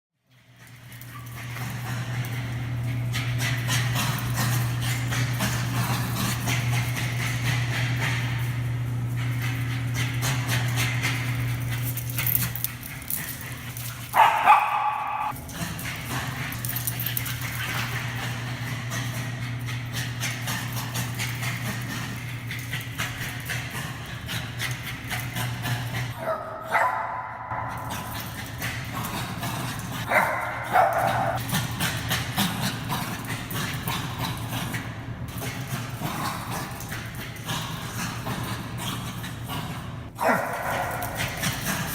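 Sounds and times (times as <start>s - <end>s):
steady low hum: 0.2s - 41.9s
dog claws clicking on floor: 0.3s - 26.2s, 26.8s - 41.9s
dog barking excitedly: 11.7s - 15.4s, 25.4s - 31.6s, 40.2s - 41.9s
dog barking: 14.1s - 15.4s, 26.2s - 28.0s, 30.0s - 31.4s, 40.2s - 41.4s.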